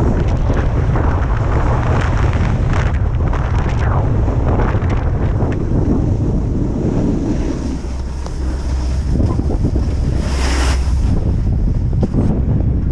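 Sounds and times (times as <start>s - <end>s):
wind buffeting microphone: 0.0s - 12.9s
hissing rush: 3.5s - 12.0s.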